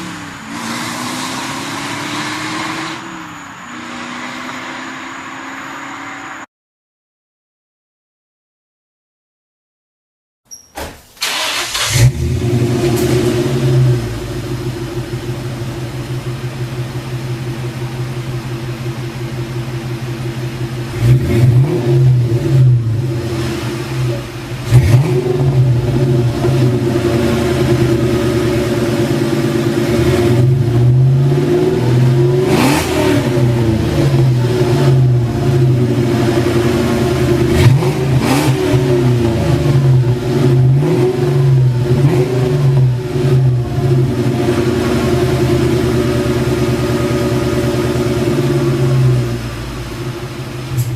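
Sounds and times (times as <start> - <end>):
car engine starting: 0.0 - 6.4, 11.2 - 50.9
engine revving: 0.0 - 6.5, 11.2 - 18.5, 19.2 - 50.9
car engine idling: 11.2 - 50.9.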